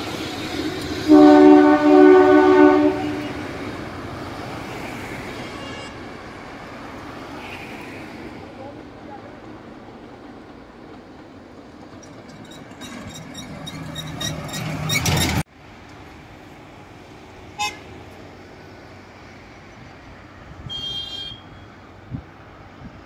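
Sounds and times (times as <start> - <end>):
train clattering past: 0.0 - 20.5
train horn: 1.0 - 3.6, 5.4 - 6.1, 17.6 - 17.9, 20.6 - 21.7.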